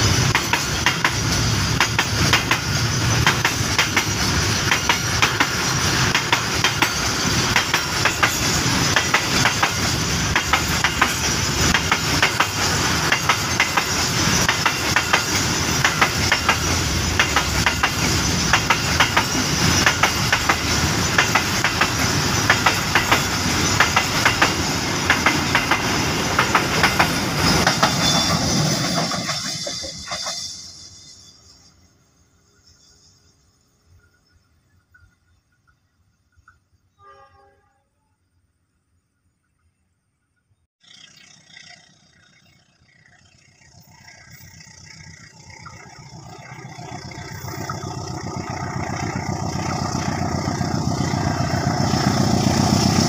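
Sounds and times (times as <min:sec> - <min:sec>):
wheels clacking over rail joints: 0:00.0 - 0:30.5
freight train rumbling: 0:00.0 - 0:36.8, 0:41.0 - 0:53.0.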